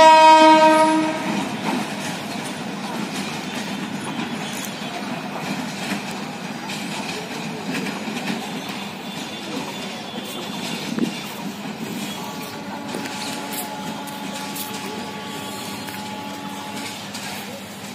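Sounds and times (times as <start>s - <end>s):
train wheels rumbling on rail: 0.0s - 17.9s
faint rail joint clicks: 2.2s - 11.4s, 12.8s - 17.9s.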